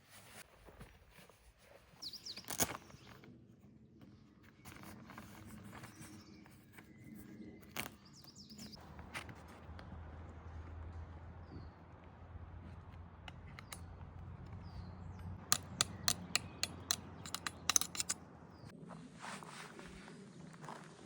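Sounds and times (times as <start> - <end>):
bird chirping: 2.0 - 3.2, 5.7 - 8.9, 12.6 - 18.7.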